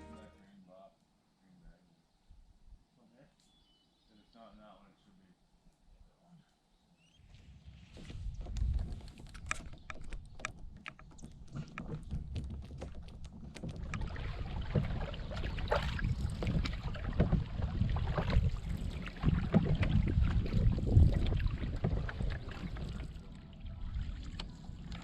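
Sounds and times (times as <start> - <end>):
wind on microphone: 7.4 - 10.4, 13.6 - 25.0
water sloshing and splashing: 10.8 - 25.0.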